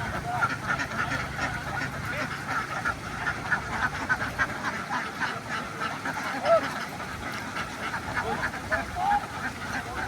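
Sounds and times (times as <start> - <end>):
flock of ducks quacking: 0.0 - 10.0.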